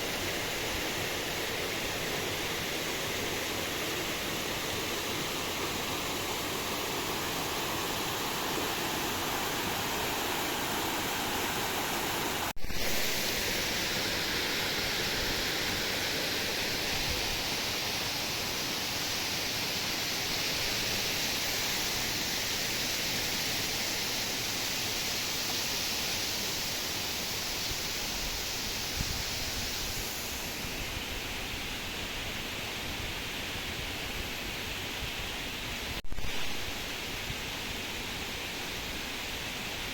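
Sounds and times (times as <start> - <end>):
rushing water hiss: 0.0 - 39.9.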